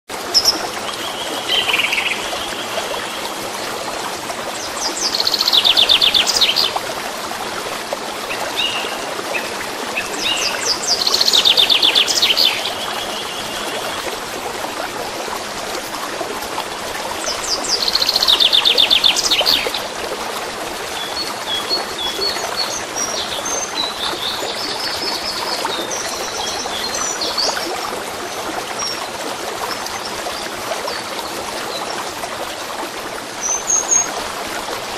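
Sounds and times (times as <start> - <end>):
running water stream: 0.1 - 34.9
songbirds singing: 4.6 - 6.8, 8.3 - 14.0.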